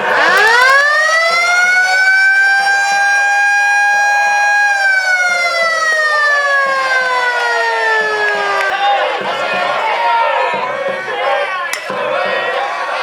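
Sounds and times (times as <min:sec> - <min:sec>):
stadium siren wailing: 0:00.0 - 0:09.5.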